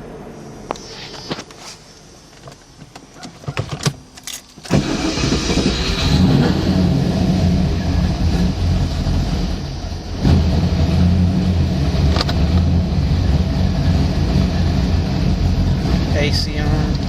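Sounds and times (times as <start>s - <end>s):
car engine running with misfire: 0.7s - 17.0s
keys jingling: 2.4s - 4.7s.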